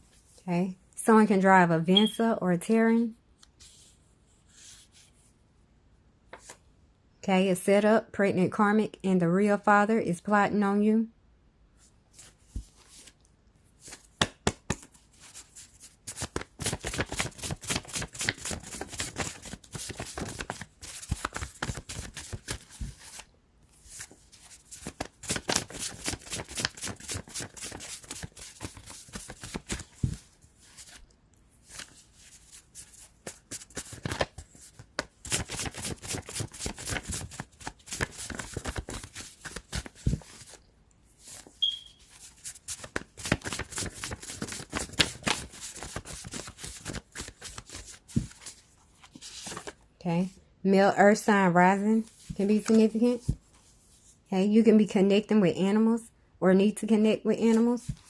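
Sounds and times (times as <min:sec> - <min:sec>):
cards being shuffled: 0:13.8 - 0:23.3, 0:23.9 - 0:31.0, 0:31.6 - 0:40.6, 0:42.1 - 0:49.8.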